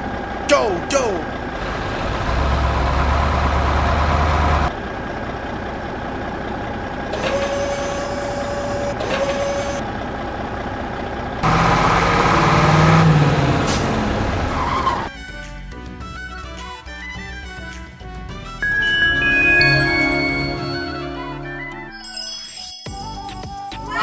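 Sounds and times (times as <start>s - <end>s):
vehicle engine noise: 1.4s - 7.0s, 11.4s - 15.0s
music: 15.1s - 24.0s
steady beep-like tone: 18.6s - 22.0s.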